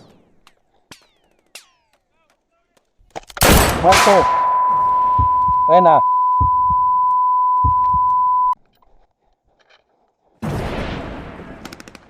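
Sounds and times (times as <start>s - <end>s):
steady beep tone: 3.8s - 8.6s.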